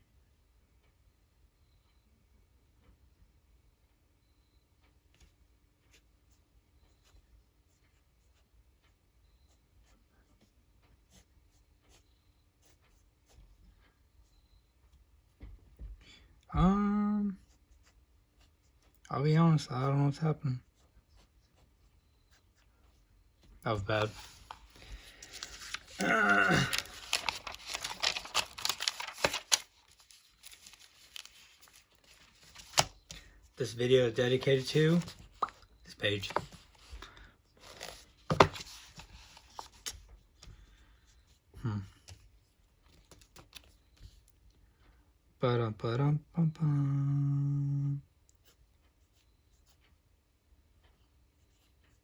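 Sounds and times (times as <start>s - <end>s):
wordless vocal sound: 25.9s - 27.0s.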